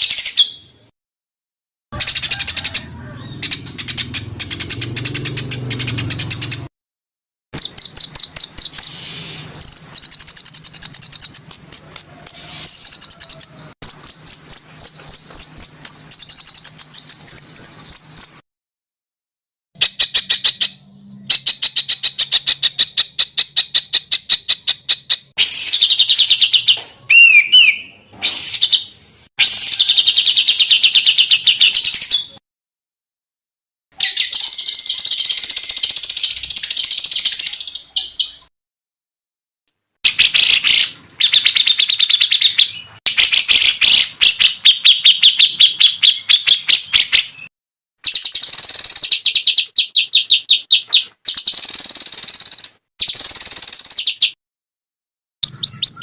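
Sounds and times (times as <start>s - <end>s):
songbird chattering notes: 55.4s - 56.0s.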